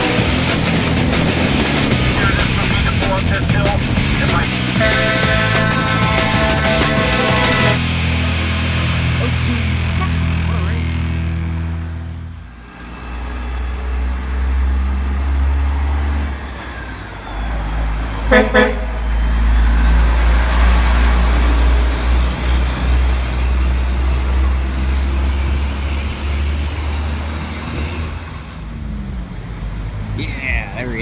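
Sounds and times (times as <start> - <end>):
truck engine running: 0.0 - 31.0
truck horn toots: 1.9 - 7.8, 18.2 - 19.4.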